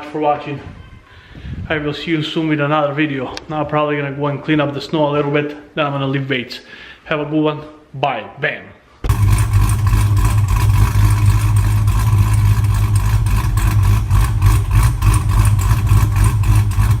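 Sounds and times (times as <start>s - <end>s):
car engine running: 9.0s - 17.0s.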